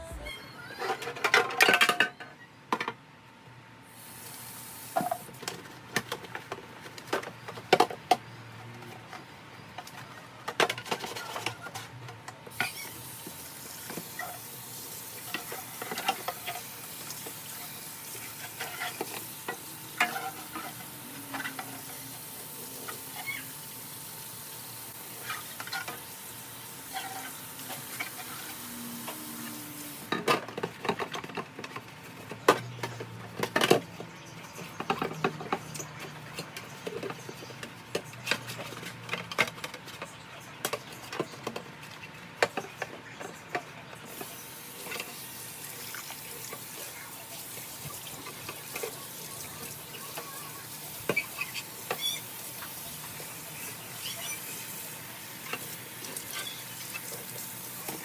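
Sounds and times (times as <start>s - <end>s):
dishes and containers clinking: 0.7s - 3.0s, 30.1s - 41.7s.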